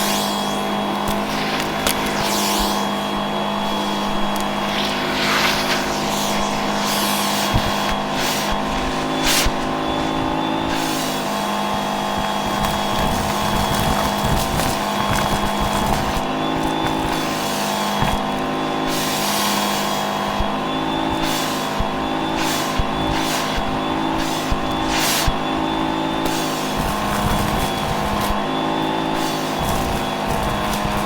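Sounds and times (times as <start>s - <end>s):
vacuum cleaner motor whine: 0.0s - 31.0s
rushes of air: 1.1s - 14.3s.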